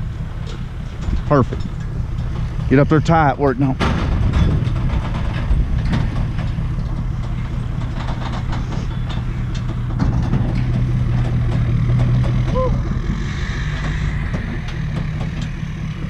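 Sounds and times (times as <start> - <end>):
vehicle engine humming: 0.0 - 16.0
metal clicks and knocks: 3.8 - 12.5.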